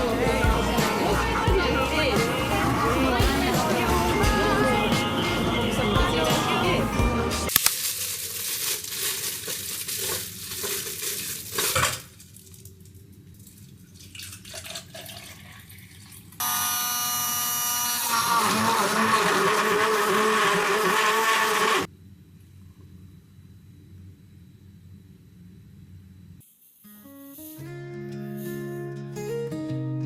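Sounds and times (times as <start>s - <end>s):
clattering rustling noise: 7.6s - 13.7s
blender motor running: 16.4s - 21.9s.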